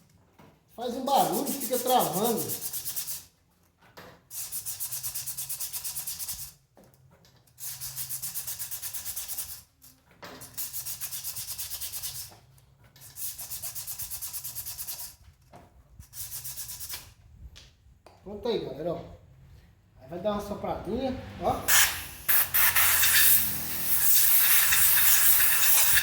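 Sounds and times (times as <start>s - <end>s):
sandpaper scrubbing metal: 0.8s - 3.3s, 4.3s - 6.6s, 7.6s - 9.7s, 10.4s - 12.3s, 13.0s - 15.2s, 16.0s - 17.1s, 21.7s - 26.0s.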